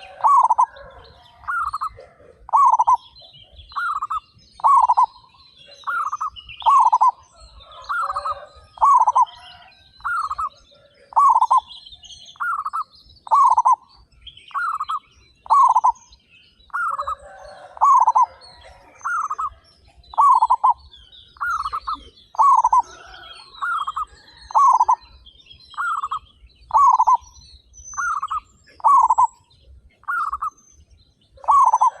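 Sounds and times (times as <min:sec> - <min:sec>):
dove cooing: 0:00.0 - 0:05.1, 0:05.7 - 0:11.7, 0:12.4 - 0:13.8, 0:14.5 - 0:16.0, 0:16.7 - 0:20.8, 0:21.4 - 0:25.1, 0:25.7 - 0:27.2, 0:28.0 - 0:29.4, 0:31.4 - 0:32.0
small birds chirping faintly: 0:00.0 - 0:32.0.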